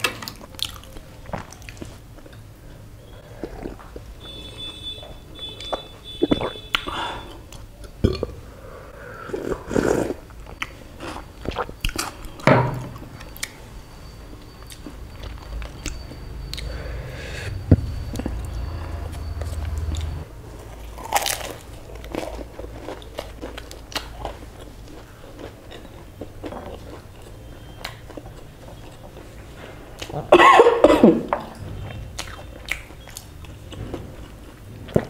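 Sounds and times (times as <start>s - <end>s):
crunchy chewing: 0.0s - 2.4s, 5.4s - 8.3s, 9.2s - 12.4s, 18.0s - 30.3s
wet mouth sounds: 3.2s - 4.1s, 5.6s - 8.4s, 9.2s - 12.4s.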